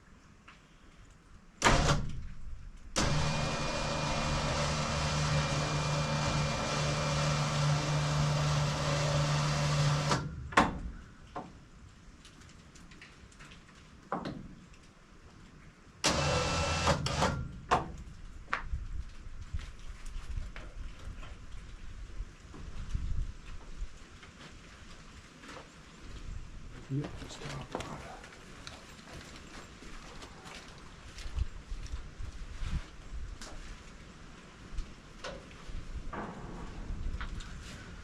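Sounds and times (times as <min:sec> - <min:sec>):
small electric motor humming: 0:03.0 - 0:10.2
knocks and clatter: 0:35.2 - 0:37.6.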